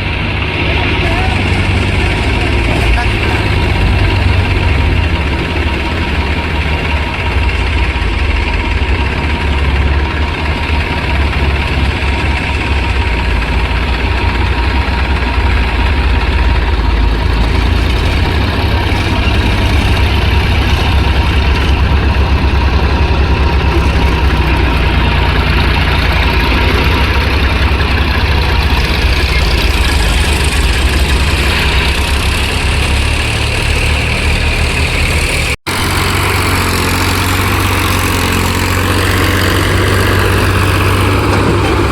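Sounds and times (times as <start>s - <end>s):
tractor diesel engine idling: 0.0s - 41.9s.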